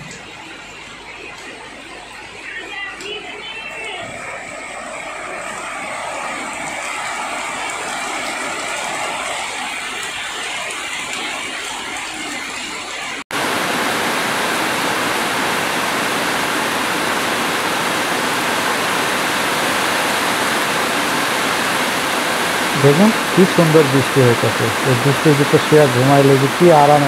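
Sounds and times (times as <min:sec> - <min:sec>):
steady rain: 0:00.0 - 0:27.0
heavy rain on metal roofs: 0:04.1 - 0:27.0.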